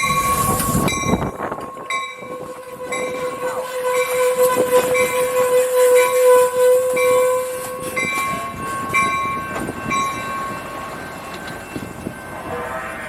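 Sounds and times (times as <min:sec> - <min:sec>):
bell ringing: 0:00.0 - 0:03.3, 0:08.0 - 0:12.9
train horn: 0:00.0 - 0:11.0, 0:11.7 - 0:13.0
train rumbling on tracks: 0:00.0 - 0:13.0.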